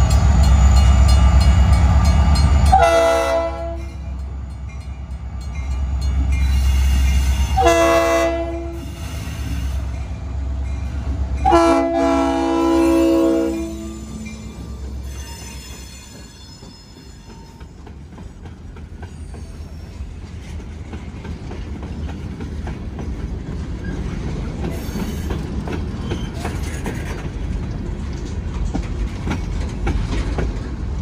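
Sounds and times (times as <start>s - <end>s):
freight train rumbling: 0.0s - 31.0s
wheel flange squeals: 12.8s - 17.8s, 19.0s - 20.3s
wheels clicking over rail joints: 14.6s - 31.0s.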